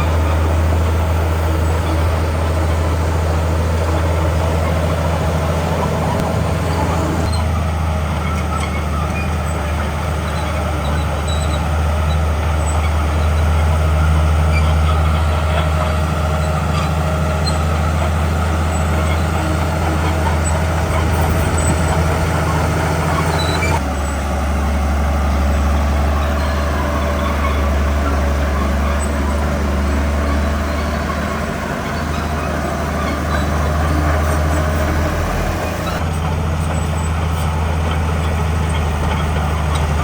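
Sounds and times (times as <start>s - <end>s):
heavy diesel engine under load: 0.0s - 40.0s.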